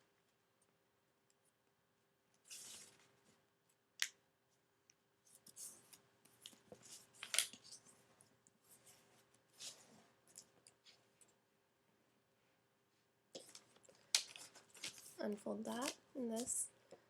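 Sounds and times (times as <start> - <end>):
paper crackling and rustling: 2.5 - 3.2, 5.4 - 8.1, 13.4 - 16.7.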